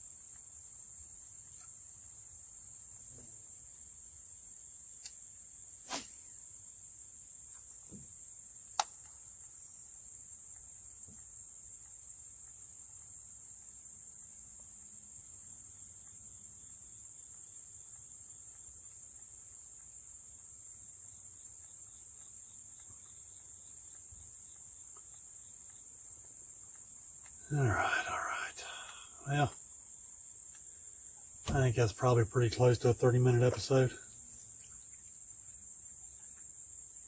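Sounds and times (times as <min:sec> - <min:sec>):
insects chorus: 0:23.2 - 0:37.0.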